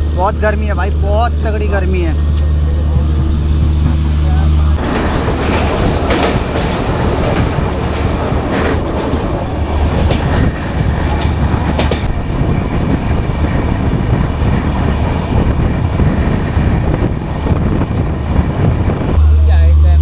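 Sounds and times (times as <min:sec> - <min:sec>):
train rumbling from inside coach: 0:00.0 - 0:20.0
wheel clacks over rail joints: 0:04.8 - 0:12.2.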